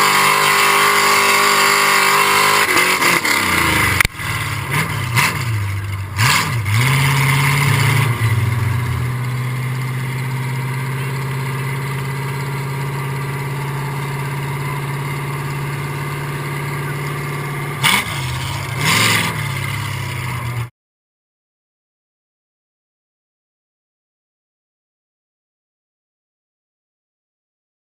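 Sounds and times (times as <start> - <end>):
vehicle engine idling and revving: 0.0 - 20.7.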